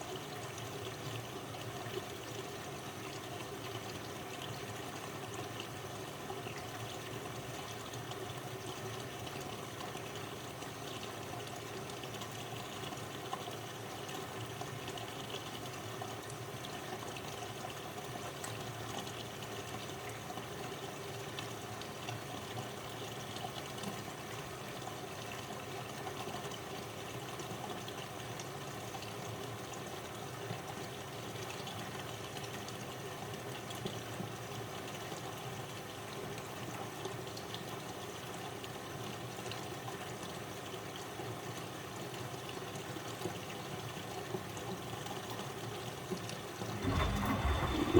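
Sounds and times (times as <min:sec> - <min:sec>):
washing machine running: 0:46.6 - 0:47.9
water sloshing in machine: 0:46.6 - 0:47.9.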